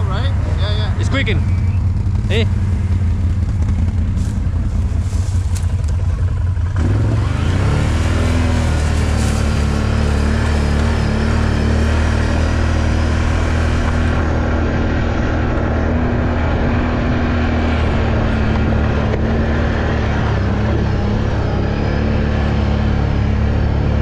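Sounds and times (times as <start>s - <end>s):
atv engine droning: 0.0s - 24.0s.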